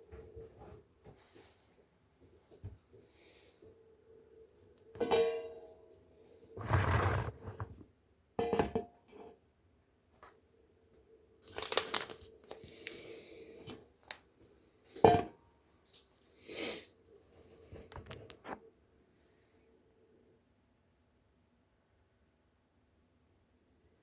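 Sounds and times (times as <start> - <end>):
scrapes and clatters of kitchen work: 4.8 - 7.8, 8.4 - 9.5, 14.8 - 18.7.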